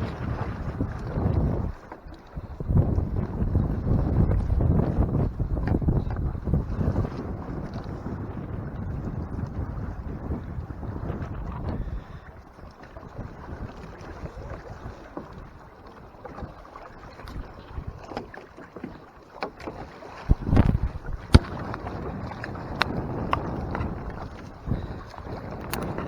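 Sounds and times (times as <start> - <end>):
wind on microphone: 0.0 - 19.0, 19.6 - 26.0
water slapping against hull: 0.0 - 26.0
knocks on hull: 18.1 - 23.9.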